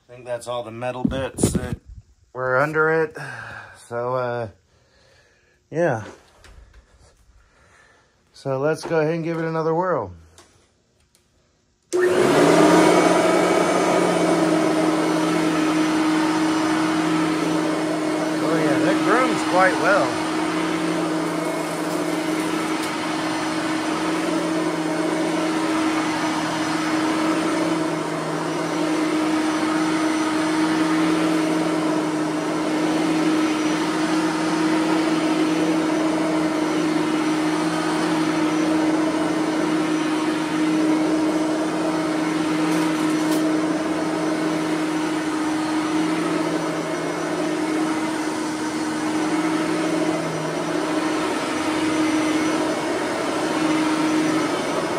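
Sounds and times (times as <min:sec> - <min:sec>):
upright vacuum cleaner running: 0:11.9 - 0:54.9.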